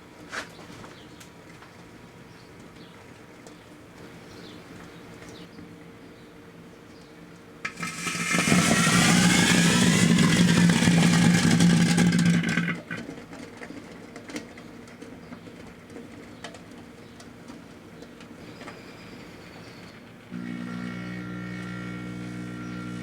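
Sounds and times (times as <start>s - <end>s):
microwave oven hum: 7.5s - 13.0s, 18.4s - 23.0s.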